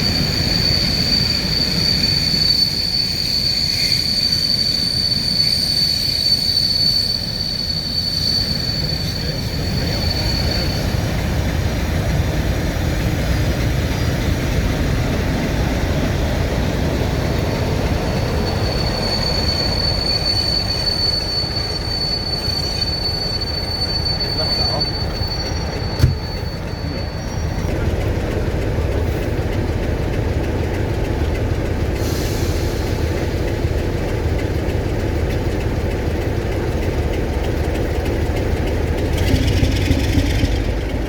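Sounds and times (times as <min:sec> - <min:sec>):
train rumbling: 0:00.0 - 0:41.0
train wheels squealing: 0:00.0 - 0:41.0.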